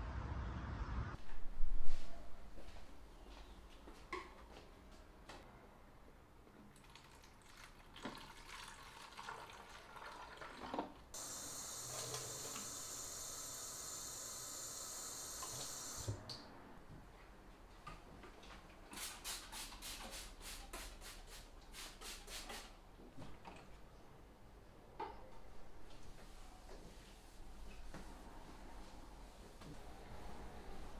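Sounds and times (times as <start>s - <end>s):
tap water running: 6.8s - 16.2s.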